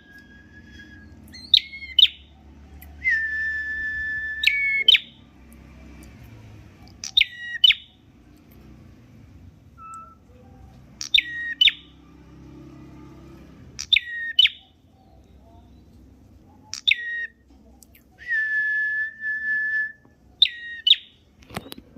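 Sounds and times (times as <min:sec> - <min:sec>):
songbird calling: 0:00.0 - 0:03.3, 0:04.3 - 0:05.3, 0:06.9 - 0:08.0, 0:09.8 - 0:12.0, 0:13.8 - 0:17.4, 0:20.3 - 0:21.8.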